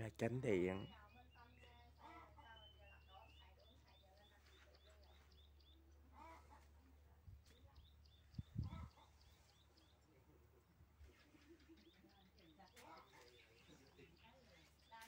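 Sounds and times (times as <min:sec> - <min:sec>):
small bird chirping: 0:00.2 - 0:06.7, 0:07.4 - 0:10.4, 0:11.0 - 0:15.0.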